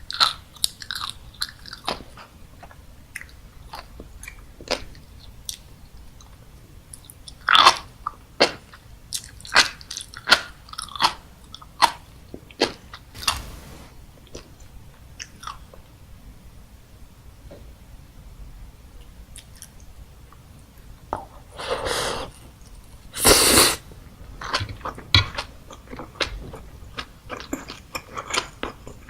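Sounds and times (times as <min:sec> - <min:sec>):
brief wet hiss: 0:13.2 - 0:14.1, 0:23.2 - 0:23.8
mouth chewing crunchy food: 0:24.4 - 0:29.0.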